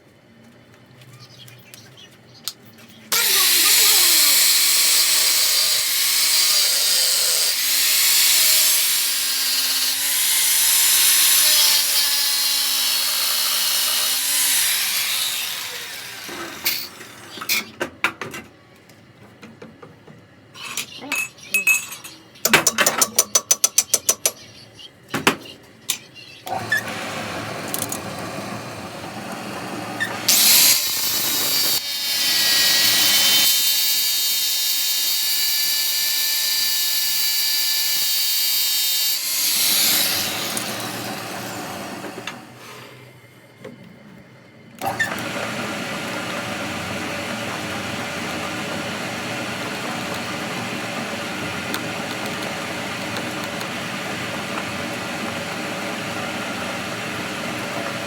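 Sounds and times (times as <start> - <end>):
power tool high-pitched whine: 3.1 - 17.0.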